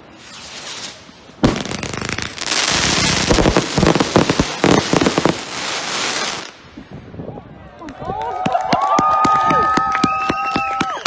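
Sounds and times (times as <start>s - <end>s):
fireworks crackling: 0.0s - 6.7s
fireworks banging: 0.2s - 6.6s.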